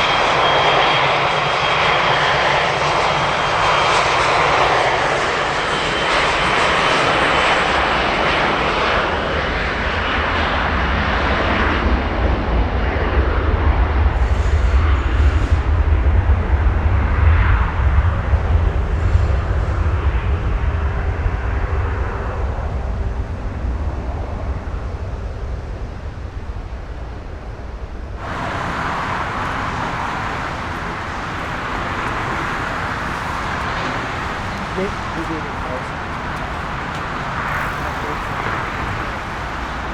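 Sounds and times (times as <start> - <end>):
jet engines deep rumble: 0.0 - 39.9
steady high rushing noise: 28.2 - 39.9.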